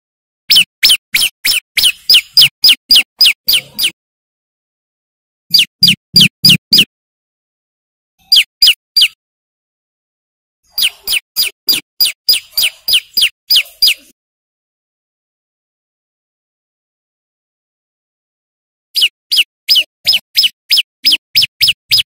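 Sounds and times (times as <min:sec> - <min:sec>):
bird sharp downward chirps: 0:00.5 - 0:04.0, 0:05.5 - 0:06.9, 0:08.2 - 0:09.2, 0:10.7 - 0:14.1, 0:19.0 - 0:22.0.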